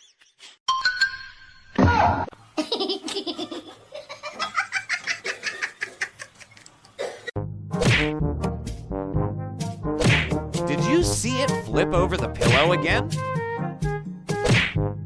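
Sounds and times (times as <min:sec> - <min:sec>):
laughter in bursts: 0:02.6 - 0:06.6.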